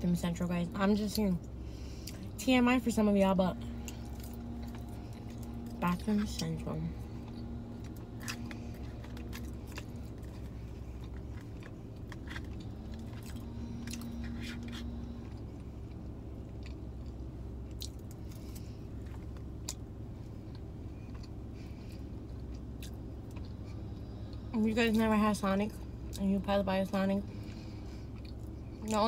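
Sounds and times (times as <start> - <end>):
low steady hum: 0.0 - 29.0
person chewing: 3.7 - 24.4, 27.4 - 29.0.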